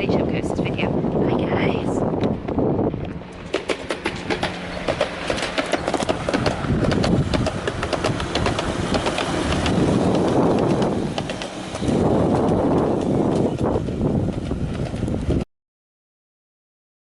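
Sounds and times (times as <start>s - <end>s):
low train hum and rumble: 0.0s - 15.4s
sharp clicks of train wheels: 3.3s - 15.4s.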